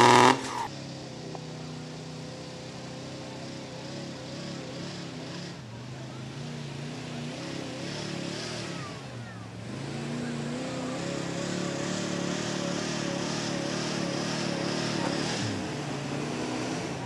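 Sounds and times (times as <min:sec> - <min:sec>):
vehicle engine under load: 0:00.0 - 0:17.0.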